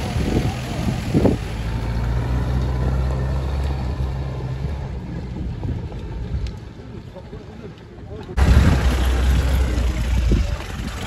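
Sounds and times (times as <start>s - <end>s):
outdoor background noise: 0.0s - 11.0s
car engine idling: 8.4s - 11.0s.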